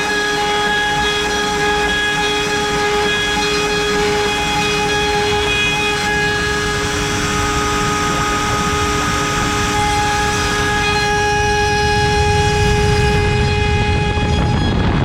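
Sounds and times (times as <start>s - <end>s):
cutter milling wood: 0.0s - 15.0s
router spindle whine: 0.0s - 15.0s.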